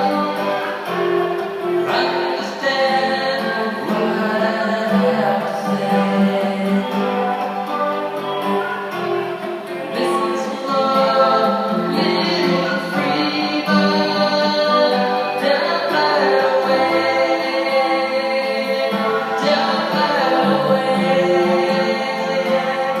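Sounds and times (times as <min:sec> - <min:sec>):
person singing long held notes: 0:00.0 - 0:09.0, 0:09.7 - 0:23.0.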